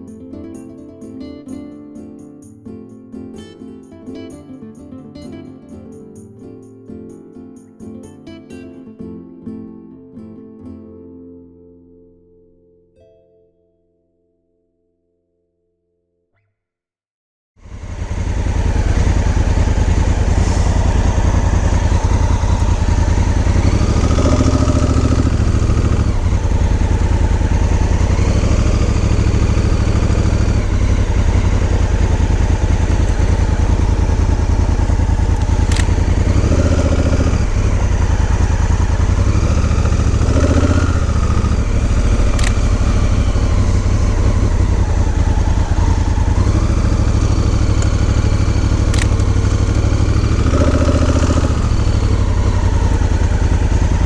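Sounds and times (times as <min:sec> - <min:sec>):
motorcycle engine droning: 0:17.6 - 0:54.0
wind and road noise: 0:17.6 - 0:54.0.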